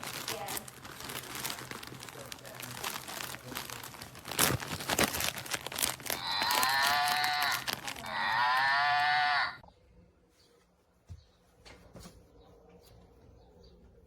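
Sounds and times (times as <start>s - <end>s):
rustling and crinkling handling: 0.0s - 8.8s
electronic toy cow moo: 6.2s - 9.6s.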